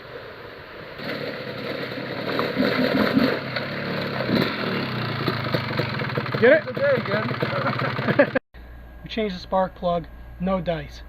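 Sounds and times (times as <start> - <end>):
quad engine revving: 1.0 - 8.4.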